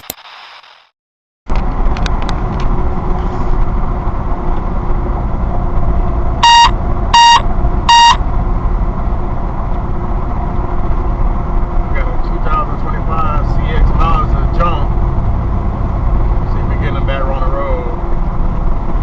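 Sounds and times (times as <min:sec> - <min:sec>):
vehicle rumble: 0:01.5 - 0:19.0
short electronic beeps: 0:06.4 - 0:08.2.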